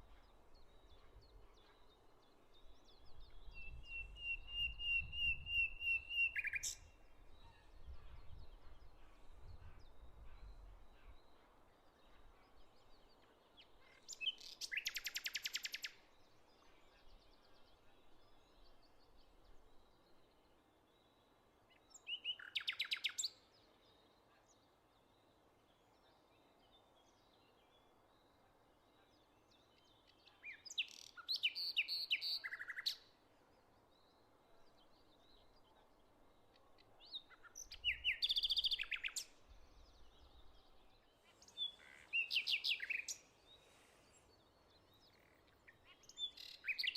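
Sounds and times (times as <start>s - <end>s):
songbirds singing: 0.0s - 46.9s
faint bird calls: 41.2s - 46.9s.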